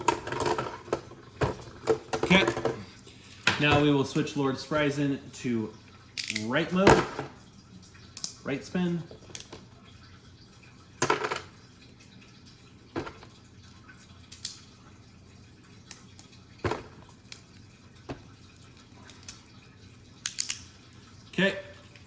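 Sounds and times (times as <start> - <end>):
small plastic clicks and knocks: 20.2 - 20.7.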